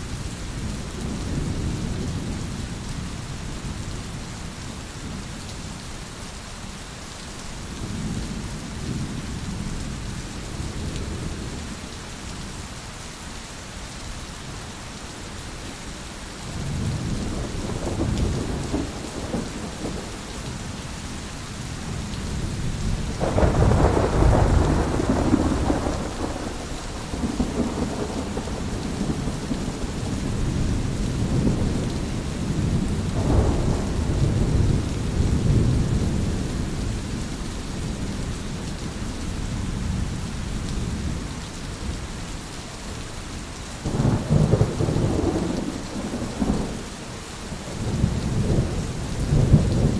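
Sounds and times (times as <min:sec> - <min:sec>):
steady rain: 0:00.0 - 0:49.9
rolling thunder: 0:16.6 - 0:20.8, 0:21.8 - 0:38.7, 0:43.9 - 0:46.9, 0:47.7 - 0:49.9.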